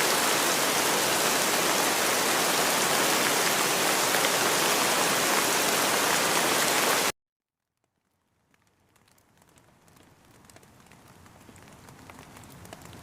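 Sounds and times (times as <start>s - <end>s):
dense rain hiss: 0.0s - 7.1s.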